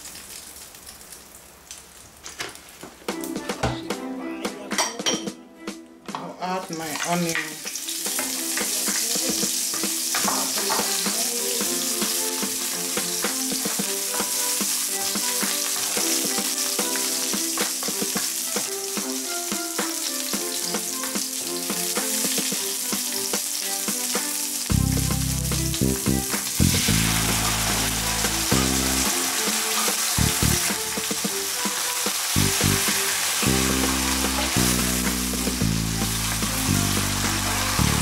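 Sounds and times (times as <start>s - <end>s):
onion sizzling in a frying pan: 6.8s - 38.0s.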